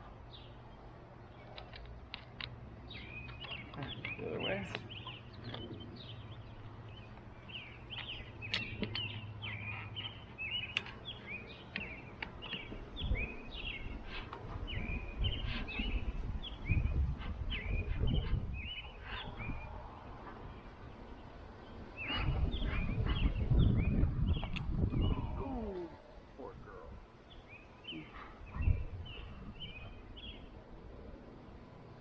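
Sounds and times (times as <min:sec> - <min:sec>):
low rumbling noise: 0:00.0 - 0:32.0
songbirds chirping: 0:00.0 - 0:32.0.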